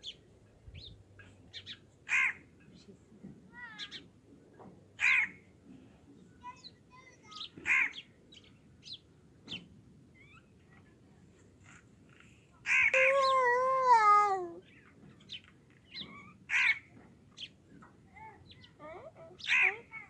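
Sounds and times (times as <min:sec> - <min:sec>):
loud harsh bird calls: 0:05.0 - 0:05.4, 0:19.4 - 0:19.9.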